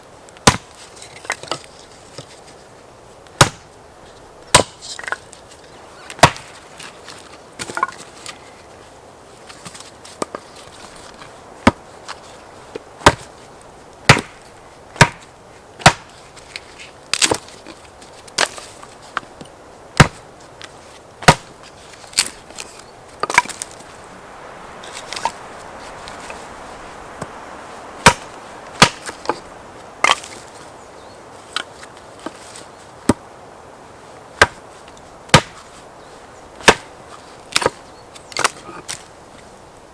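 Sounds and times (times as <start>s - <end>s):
wood being chopped: 0.4s - 2.3s, 3.4s - 3.7s, 4.5s - 5.2s, 6.1s - 6.6s, 7.6s - 8.4s, 11.6s - 12.2s, 13.0s - 13.3s, 14.0s - 14.4s, 15.0s - 16.1s, 17.1s - 17.6s, 18.3s - 18.6s, 20.0s - 20.2s, 21.2s - 23.8s, 28.0s - 29.4s, 30.0s - 30.4s, 33.0s - 33.2s, 34.4s - 34.7s, 35.3s - 35.7s, 36.6s - 39.1s.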